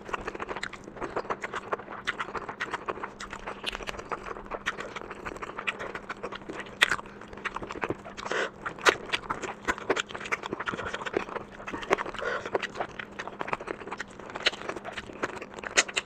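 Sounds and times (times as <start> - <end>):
chewing and biting food: 0.0 - 16.0.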